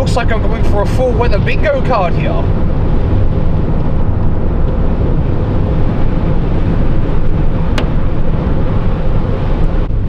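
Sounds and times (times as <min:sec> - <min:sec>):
car cabin rumble: 0:00.0 - 0:09.8.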